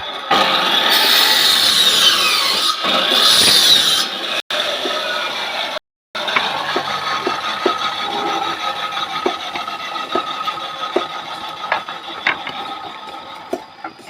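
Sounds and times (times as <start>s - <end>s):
power tool cutting wood: 0.0s - 14.0s
knocks and scraping: 2.8s - 4.1s, 6.2s - 14.0s.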